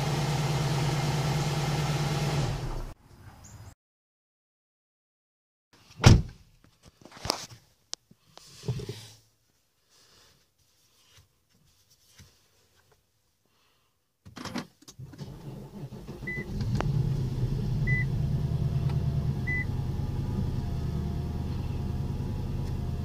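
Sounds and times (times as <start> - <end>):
engine starter cranking: 15.0 - 17.3
dashboard warning chime beeps: 17.9 - 18.1.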